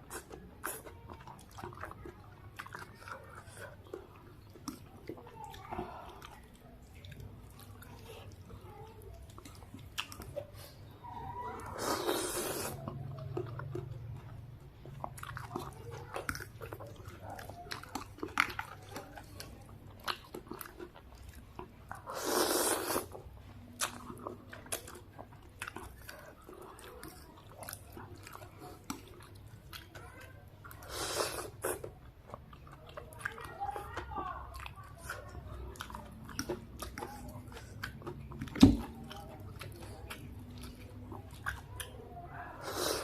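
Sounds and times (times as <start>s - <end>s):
chewing and crunchy bites: 0.0s - 43.0s
slurping noodles: 11.6s - 13.0s, 22.0s - 23.3s, 30.7s - 31.9s, 42.5s - 43.0s.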